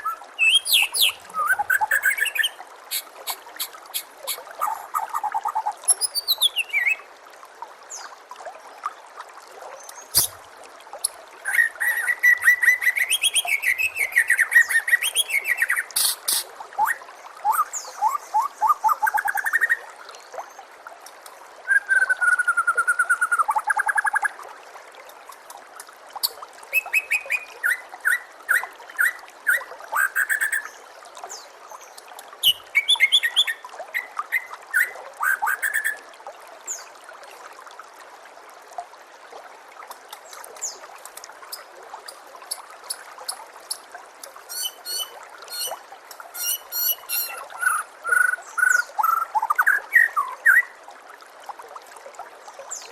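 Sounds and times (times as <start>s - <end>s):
songbird singing varied phrases: 0.0s - 7.0s, 44.5s - 50.7s
trickling water hiss: 0.0s - 52.9s.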